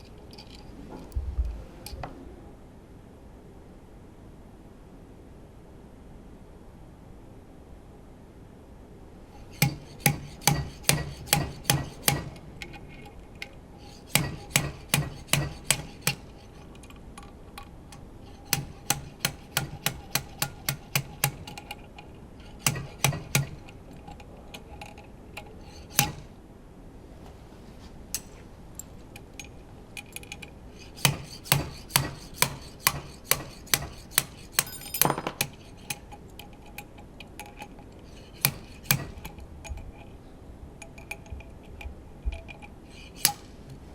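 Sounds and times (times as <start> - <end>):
metallic scrape: 9.3 - 13.0, 13.8 - 17.0, 17.9 - 26.3, 30.1 - 36.7, 38.0 - 40.1, 42.6 - 43.9.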